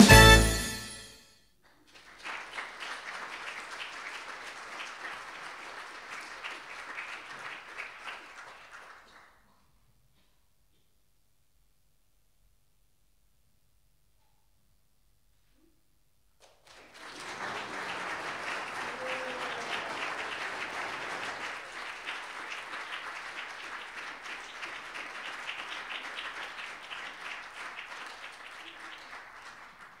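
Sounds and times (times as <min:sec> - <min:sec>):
audience applauding: 0:01.7 - 0:09.5, 0:16.4 - 0:30.0.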